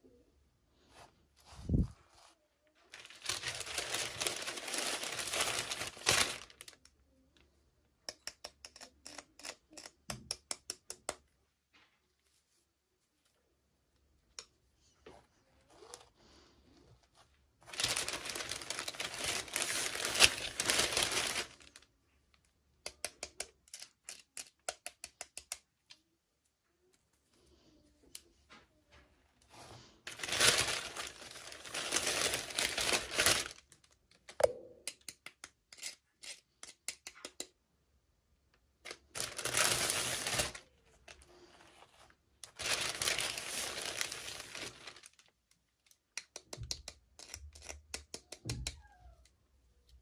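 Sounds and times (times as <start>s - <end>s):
packaging crinkling and tearing: 2.9s - 6.8s, 17.7s - 21.8s, 30.1s - 34.3s, 38.8s - 45.4s.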